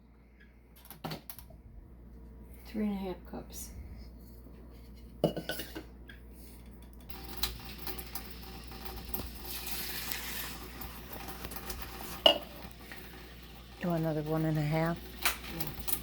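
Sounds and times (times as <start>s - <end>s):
kitchenware clinking on metal pot: 5.2s - 5.9s, 12.1s - 12.7s
ingredient rattling into pot: 7.0s - 16.0s.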